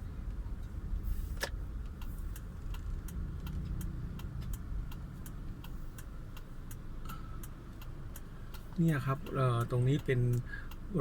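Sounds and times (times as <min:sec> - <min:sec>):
car driving rumble: 0:00.0 - 0:11.0
car turn signal clicking: 0:00.1 - 0:11.0.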